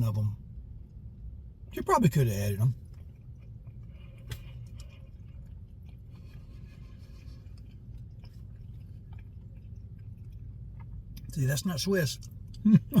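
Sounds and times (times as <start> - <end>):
low room hum: 0.0 - 13.0
person chewing food: 2.8 - 11.4.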